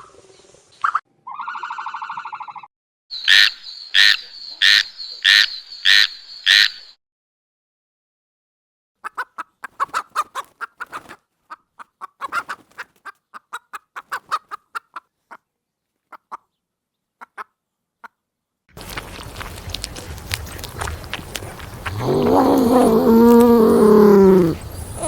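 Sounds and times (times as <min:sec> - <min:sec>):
animal making short calls: 0:21.8 - 0:25.0.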